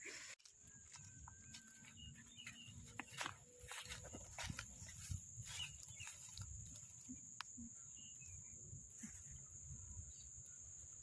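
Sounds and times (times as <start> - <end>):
high-pitched insect drone: 2.8 - 11.0.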